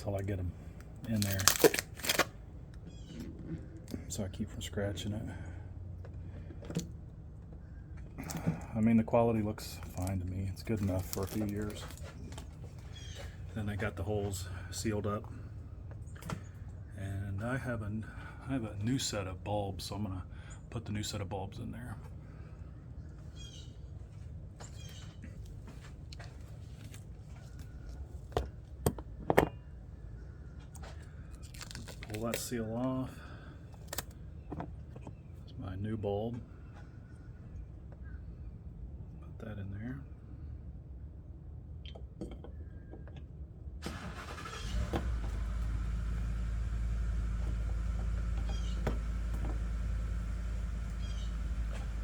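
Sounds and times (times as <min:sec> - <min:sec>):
low steady hum: 0:00.0 - 0:52.0
plastic parts clicking: 0:00.8 - 0:02.3.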